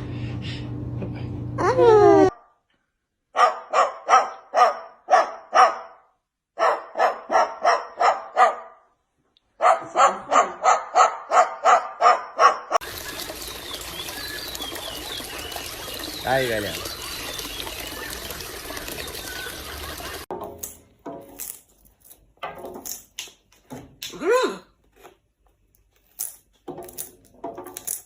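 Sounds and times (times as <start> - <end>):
quick dog-like barks: 3.4 - 8.8, 9.6 - 12.8.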